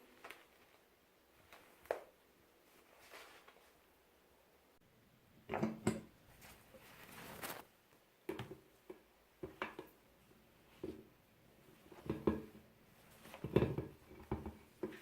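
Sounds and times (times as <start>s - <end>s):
soft rustling hiss: 0.0s - 4.8s, 6.1s - 15.0s.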